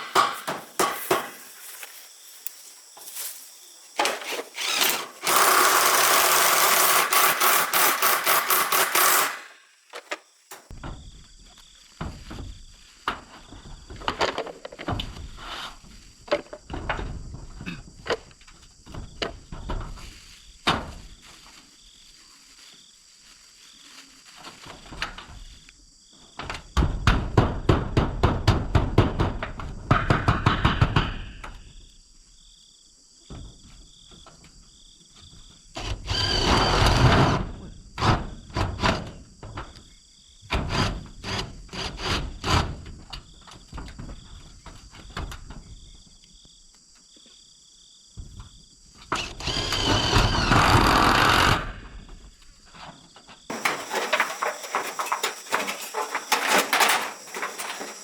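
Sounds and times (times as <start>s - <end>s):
sharp knocks: 0.0s - 1.5s
rough scraping: 0.0s - 10.7s, 53.5s - 58.0s
insects chirping: 0.0s - 27.0s, 31.2s - 58.0s.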